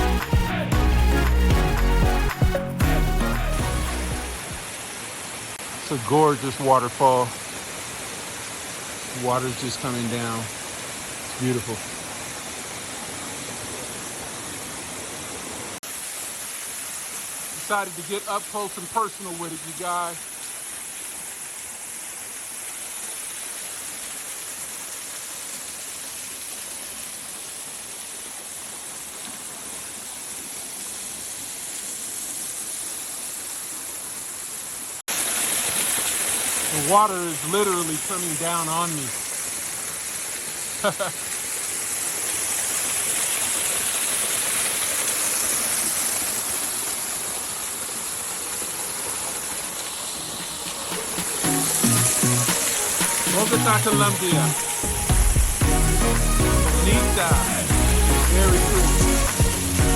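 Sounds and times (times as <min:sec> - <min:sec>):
waterfall rushing with hiss: 0:03.0 - 0:59.9
waterfall crashing: 0:35.1 - 0:59.9.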